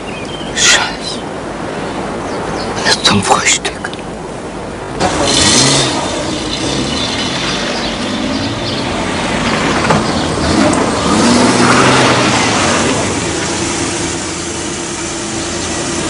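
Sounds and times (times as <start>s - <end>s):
car engine running: 4.9s - 16.0s.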